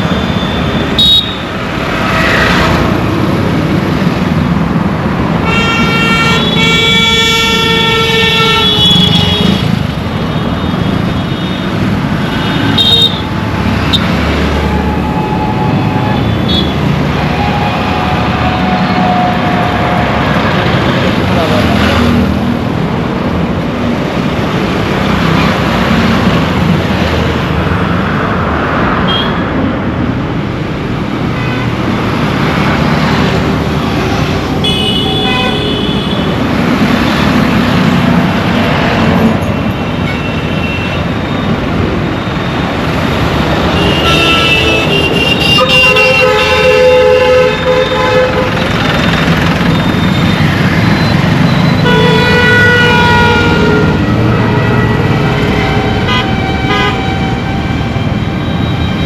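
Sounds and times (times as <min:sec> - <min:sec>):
traffic rumble: 0:00.0 - 0:59.0
vehicle horns honking: 0:01.0 - 0:01.6, 0:05.4 - 0:09.8, 0:12.4 - 0:20.2, 0:29.1 - 0:29.4, 0:33.9 - 0:36.4, 0:43.6 - 0:48.7, 0:51.4 - 0:58.0.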